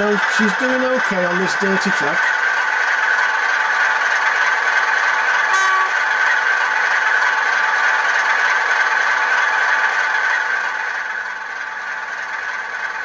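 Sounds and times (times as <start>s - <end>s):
model locomotive diesel engine sound: 0.0s - 13.0s
model train rattling on track: 0.0s - 13.0s
brief tone: 5.5s - 6.0s.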